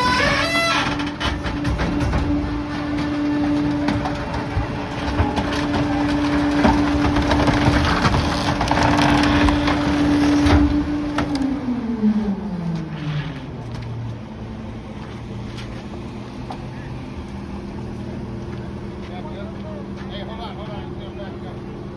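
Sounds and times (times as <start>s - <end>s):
wood cracking and splintering: 0.0s - 11.5s
garbage truck engine revving: 0.0s - 15.4s.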